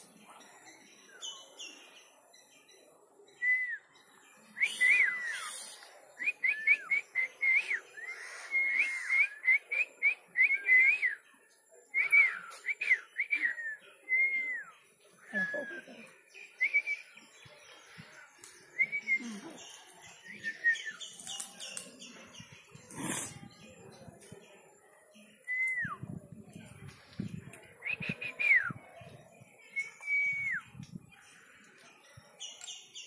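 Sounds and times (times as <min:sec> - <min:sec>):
songbird chirping: 0:00.0 - 0:33.0.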